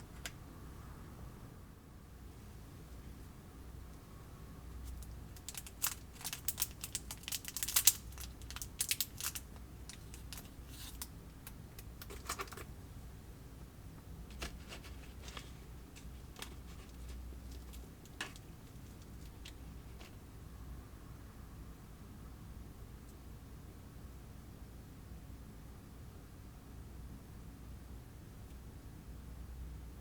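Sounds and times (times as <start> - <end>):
plastic clicks and crinkles: 4.9 - 12.7, 14.3 - 20.2.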